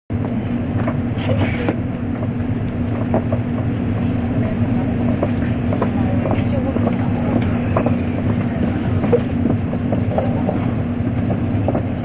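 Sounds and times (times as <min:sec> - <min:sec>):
train cabin rumble and hum: 0:00.1 - 0:12.0.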